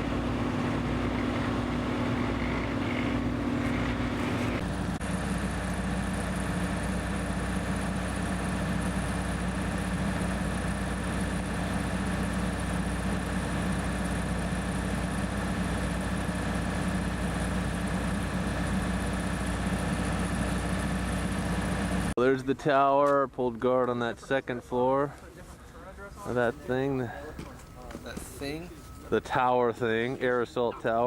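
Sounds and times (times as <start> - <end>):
steady engine drone: 0.0 - 22.2.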